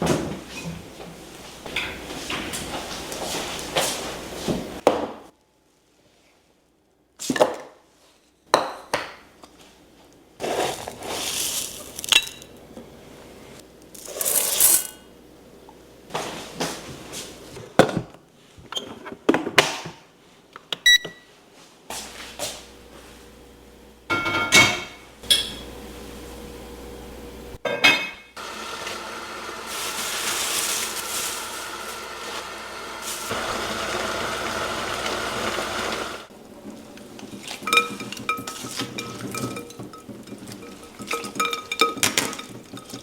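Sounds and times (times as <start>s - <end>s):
dishes and utensils clinking: 24.1s - 25.7s, 37.2s - 43.0s.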